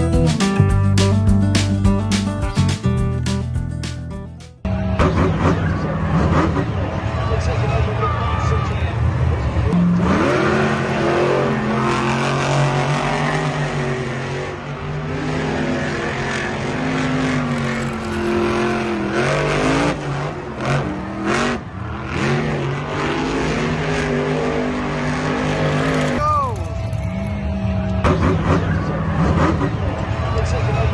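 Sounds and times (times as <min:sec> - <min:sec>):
car engine revving: 0:04.7 - 0:30.9.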